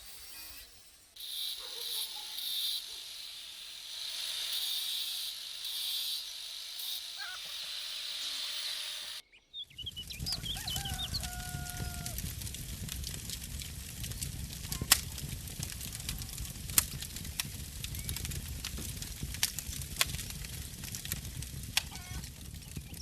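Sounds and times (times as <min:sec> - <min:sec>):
steady high hiss: 0:00.0 - 0:09.2
birds calling: 0:05.7 - 0:12.0
low rumbling noise: 0:11.8 - 0:23.0.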